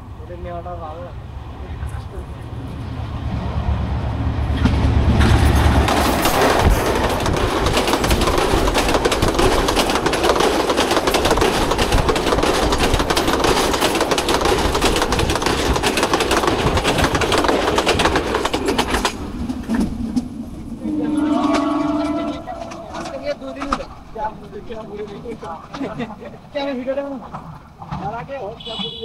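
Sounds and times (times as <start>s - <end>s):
train deep rumble: 0.0s - 28.3s
train wheels clattering on rails: 4.5s - 26.2s.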